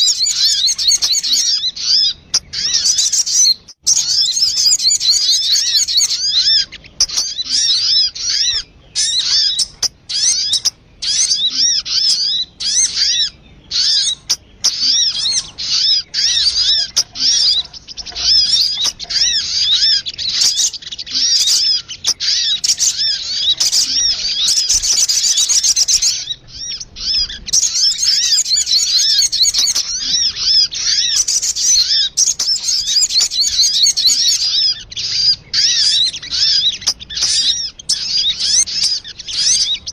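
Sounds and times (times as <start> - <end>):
high-pitched bird chattering calls: 0.0 - 39.9.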